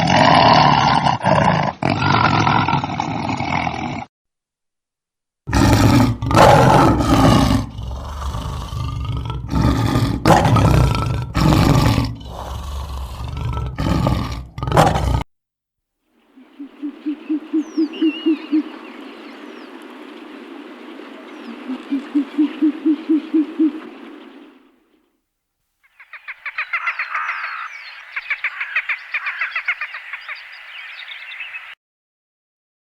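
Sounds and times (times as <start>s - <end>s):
big cat roaring and grunting: 0.0s - 4.1s, 5.5s - 15.2s
faint bird chirps: 16.2s - 24.6s, 25.8s - 31.8s
frog croaking: 16.2s - 24.6s, 25.9s - 31.7s
steady background hiss: 16.2s - 25.0s.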